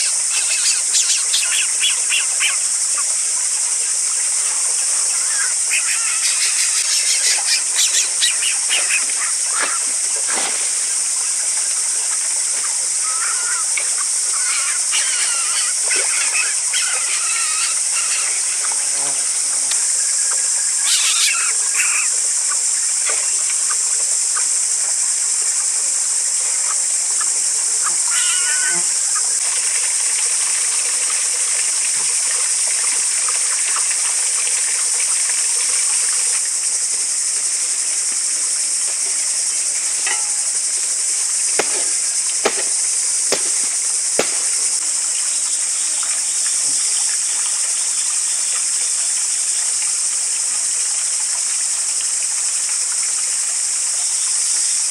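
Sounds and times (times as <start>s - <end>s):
high-pitched insect drone: 0.0s - 49.9s
sharp knocks: 41.6s - 44.8s.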